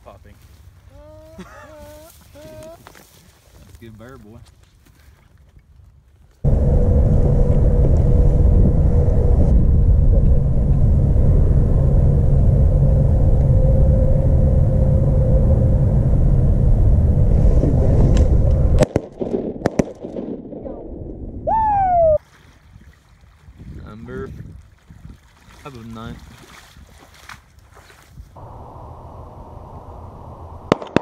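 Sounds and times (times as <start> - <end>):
wind rumbling on microphone: 6.4 - 31.0.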